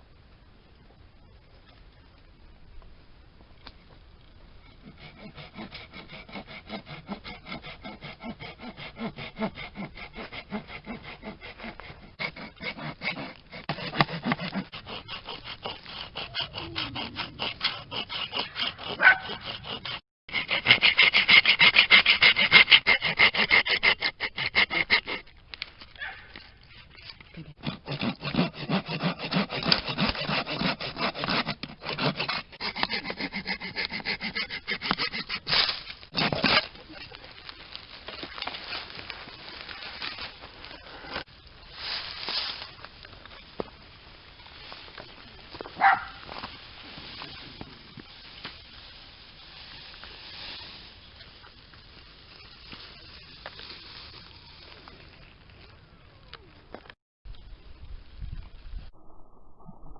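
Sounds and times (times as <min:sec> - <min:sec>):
hand tool rubbing bamboo: 0:04.6 - 0:25.3, 0:26.7 - 0:43.3.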